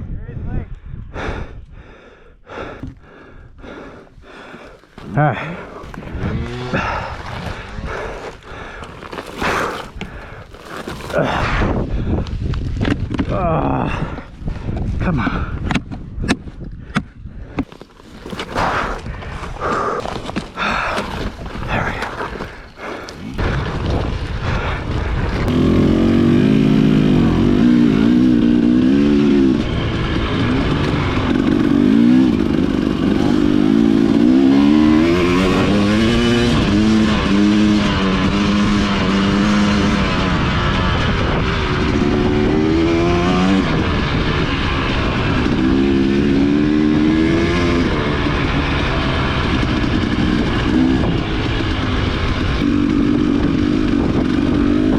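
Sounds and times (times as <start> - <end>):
dirt bike engine revving: 5.2 - 11.5, 25.1 - 54.9.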